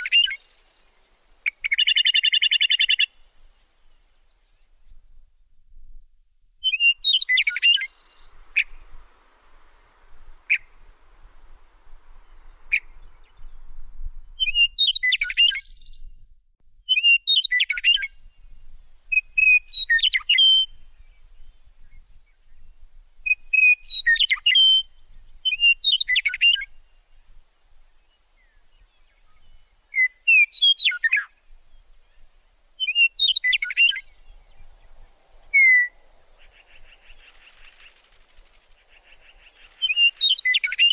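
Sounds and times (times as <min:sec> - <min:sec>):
songbird chirping phrases: 0:06.6 - 0:13.8, 0:27.9 - 0:40.9.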